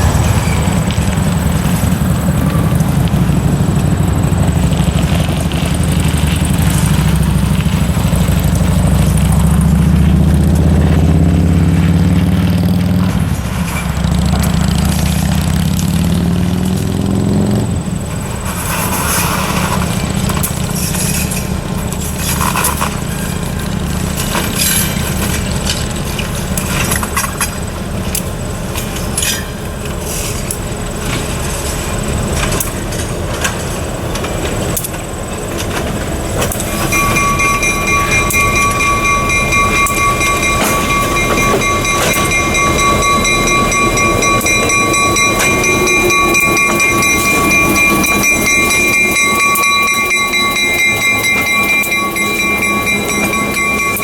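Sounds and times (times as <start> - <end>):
freight train rumbling on track: 0.0 - 54.0
wheels clanking and clicking: 0.0 - 54.0
high-pitched ringing tone: 36.6 - 54.0.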